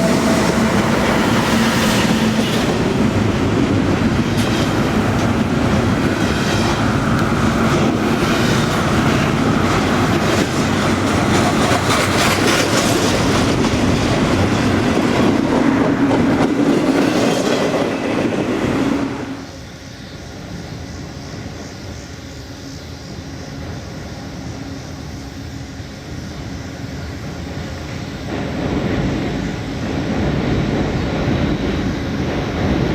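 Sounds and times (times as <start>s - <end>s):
train wheels clattering over rails: 0.0s - 19.6s, 27.6s - 32.9s.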